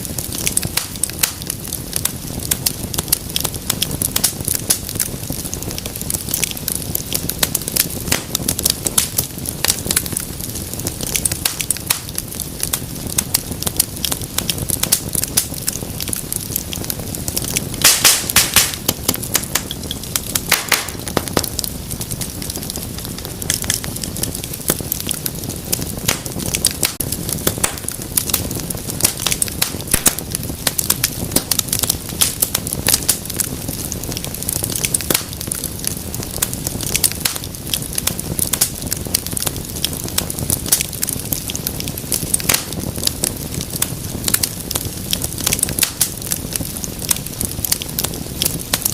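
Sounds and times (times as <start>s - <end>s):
low rumble of burning: 0.0s - 48.9s
wood fire crackling and popping: 0.0s - 48.9s
loud sharp pops: 17.8s - 21.6s, 29.0s - 30.8s.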